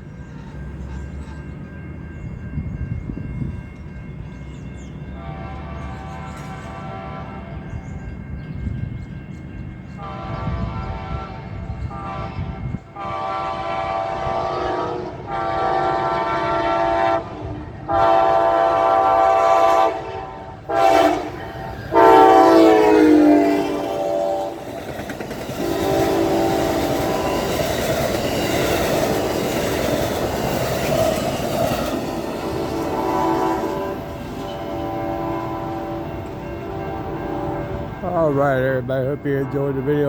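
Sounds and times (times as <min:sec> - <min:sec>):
train rumble: 0:00.0 - 0:40.0
train air horn blasts: 0:05.2 - 0:07.7, 0:10.0 - 0:24.8, 0:25.6 - 0:29.3, 0:31.8 - 0:38.4, 0:39.0 - 0:40.0.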